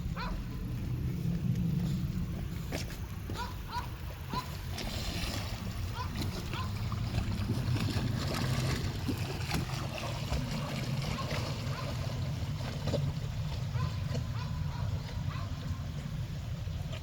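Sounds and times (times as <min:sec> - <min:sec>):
low rumble: 0:00.0 - 0:11.0
dog splashing in water: 0:04.3 - 0:15.5.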